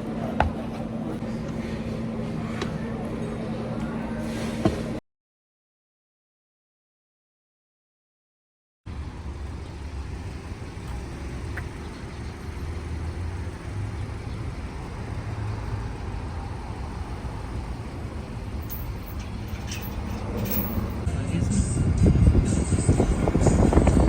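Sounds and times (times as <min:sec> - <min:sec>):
vehicle rumble in motion: 0:08.9 - 0:24.0.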